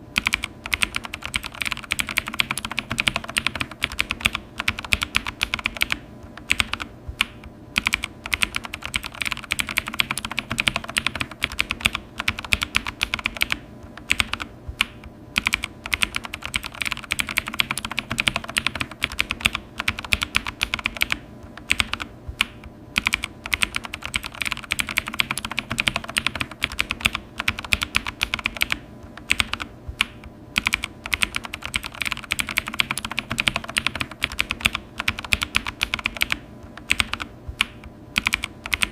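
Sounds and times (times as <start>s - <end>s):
keyboard key clicks: 0.2s - 38.9s.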